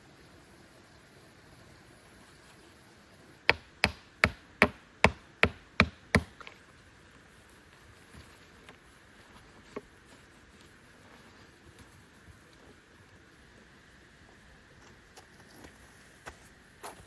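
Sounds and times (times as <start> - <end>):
blows striking wood: 3.5 - 6.4.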